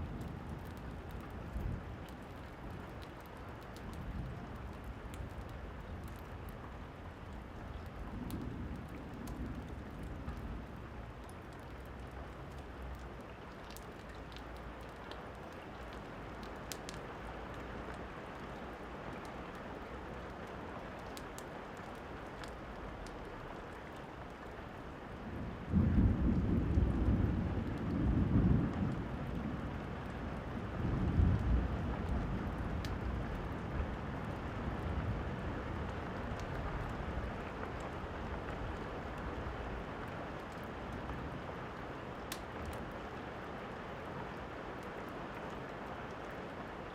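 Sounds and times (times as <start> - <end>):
fire crackling: 0.0 - 18.0, 20.0 - 25.0, 29.0 - 43.2
steady rain: 0.0 - 46.9
thunder rumbling: 25.4 - 35.9.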